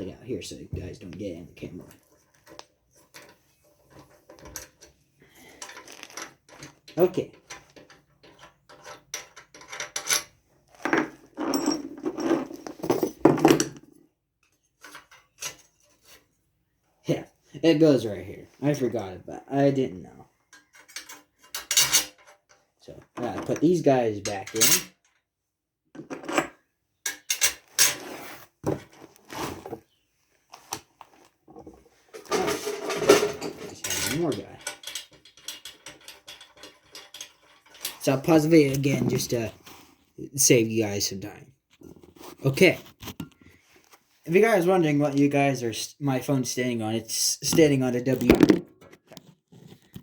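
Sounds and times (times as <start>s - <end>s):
metal parts clinking and rattling: 2.3s - 13.8s, 20.5s - 22.6s, 24.2s - 25.2s, 26.1s - 28.0s, 32.1s - 38.4s.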